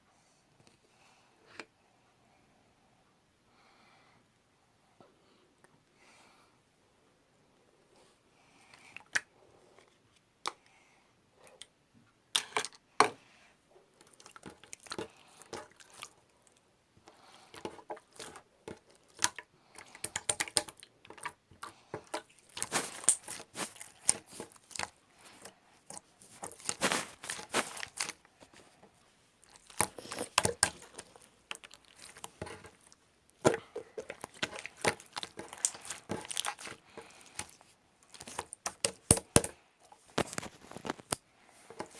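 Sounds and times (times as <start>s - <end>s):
slime squished by hand crackling: 17.5s - 28.2s, 29.4s - 39.5s.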